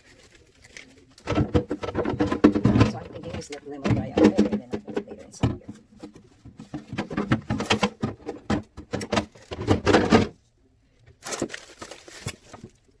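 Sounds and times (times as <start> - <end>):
rustling scrape: 0.0 - 10.5
kitchen items knocking and clattering: 1.2 - 10.4.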